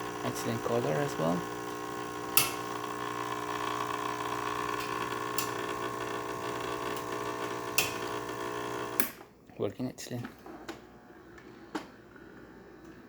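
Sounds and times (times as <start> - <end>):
espresso machine pump humming: 0.0 - 9.1.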